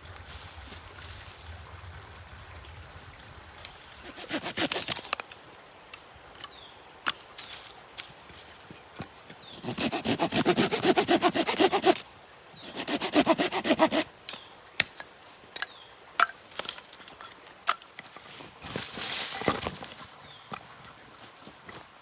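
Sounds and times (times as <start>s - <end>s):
hand saw cutting wood: 4.0s - 5.1s, 9.6s - 12.0s, 12.6s - 14.1s.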